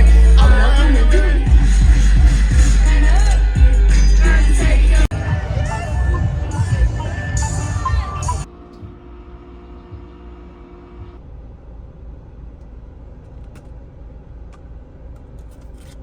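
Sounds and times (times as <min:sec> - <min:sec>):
car road rumble from inside: 0:00.0 - 0:16.0.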